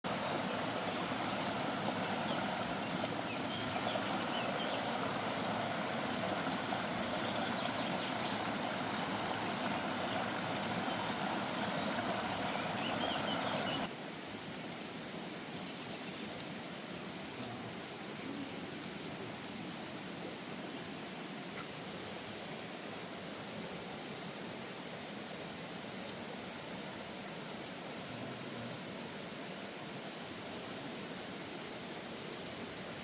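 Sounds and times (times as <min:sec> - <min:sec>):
rushing outdoor ambience: 0:00.0 - 0:33.0
faint bird chirps: 0:10.8 - 0:13.9.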